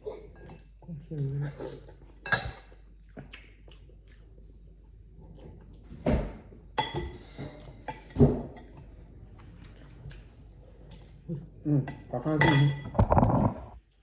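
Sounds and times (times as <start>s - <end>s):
dishes and utensils clinking: 2.2s - 2.7s, 6.8s - 9.0s, 11.9s - 13.7s.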